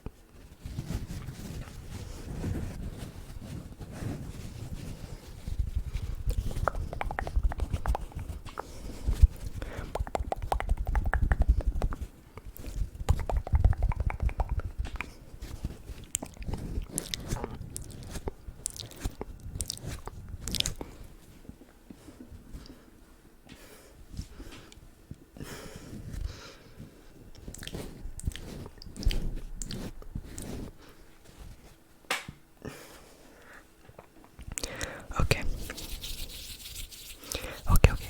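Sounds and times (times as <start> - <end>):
wet mouth clicks and smacks: 6.3 - 8.7, 9.8 - 15.2, 16.0 - 19.8, 20.4 - 20.8, 27.4 - 29.8.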